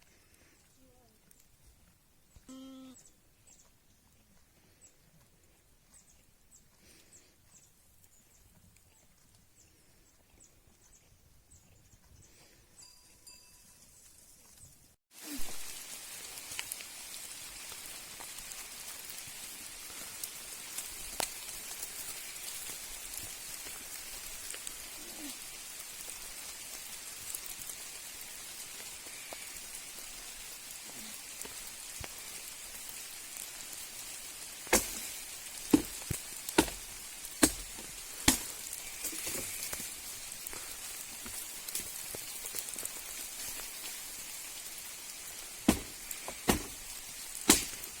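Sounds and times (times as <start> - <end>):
rain hissing: 15.1 - 48.0.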